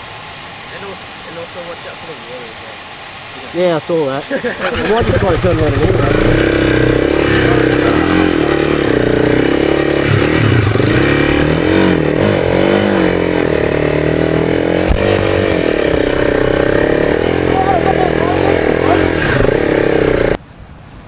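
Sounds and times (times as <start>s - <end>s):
dirt bike engine revving: 4.4s - 20.4s.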